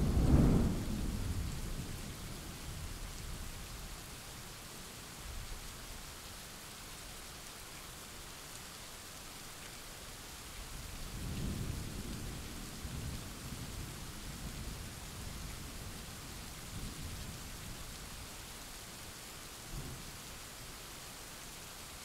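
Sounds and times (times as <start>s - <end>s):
thunder rolling: 0.0s - 1.5s
rain hiss: 0.0s - 22.0s.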